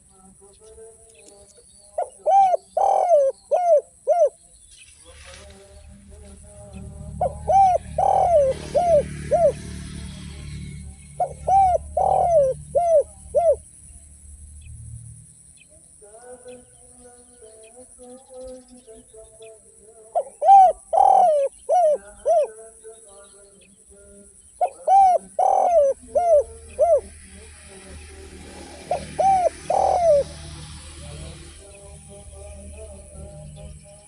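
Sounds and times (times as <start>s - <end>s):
small birds chirping: 0.0s - 34.0s
dove cooing: 2.0s - 4.4s, 6.7s - 13.8s, 20.1s - 22.6s, 24.6s - 33.6s.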